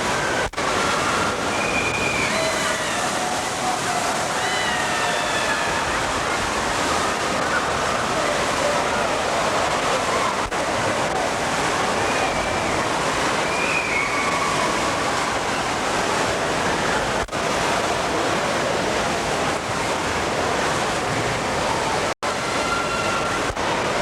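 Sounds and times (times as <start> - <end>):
faint distant shouting voices: 0.0 - 16.0
pouring and splashing water: 0.0 - 24.0.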